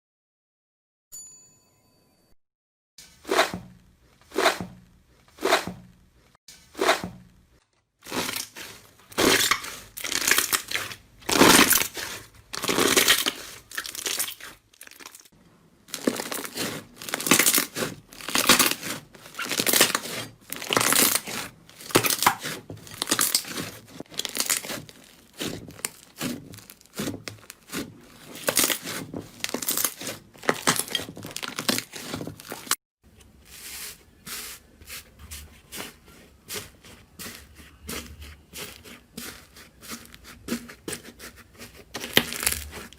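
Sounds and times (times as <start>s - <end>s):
slime crackling: 8.0s - 15.3s, 15.9s - 32.8s, 35.8s - 42.9s.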